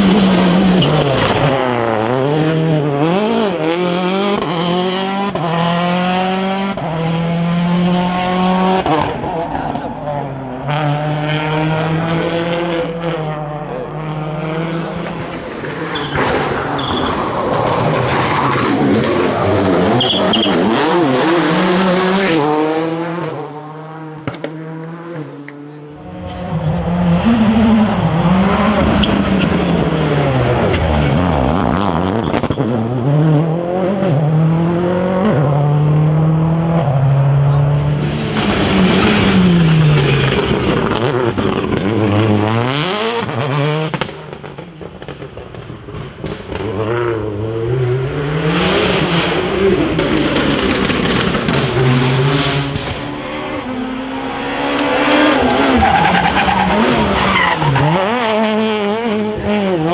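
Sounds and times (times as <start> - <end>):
rally car engines at full throttle: 0.0 - 59.9.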